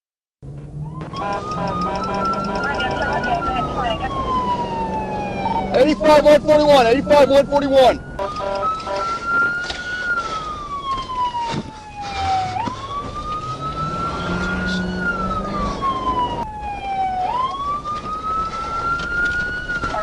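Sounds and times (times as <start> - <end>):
emergency siren wailing: 0.7 - 20.0.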